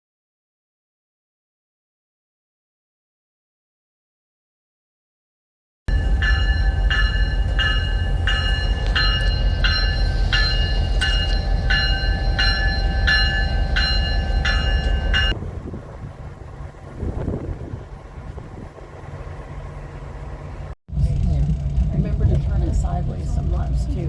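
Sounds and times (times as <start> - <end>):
bell ringing: 5.9 - 15.4
train rumbling on track: 5.9 - 24.0.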